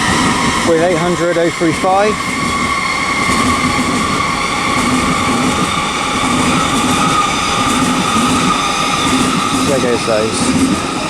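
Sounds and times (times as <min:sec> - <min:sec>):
train high whine: 0:00.0 - 0:11.0
train wheels rhythmic rumble: 0:00.0 - 0:11.0.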